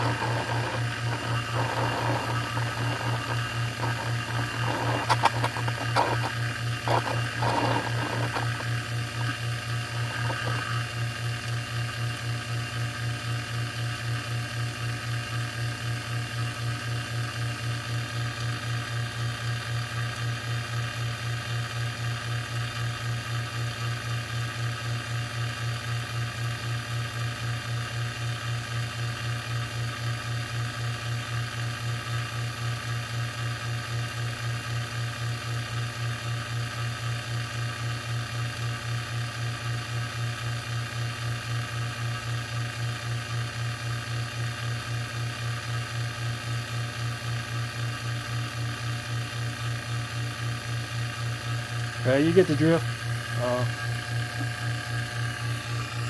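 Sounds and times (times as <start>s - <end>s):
short rattles and clicks: 0.0s - 10.8s
vacuum pump humming: 0.0s - 11.8s, 51.2s - 56.0s.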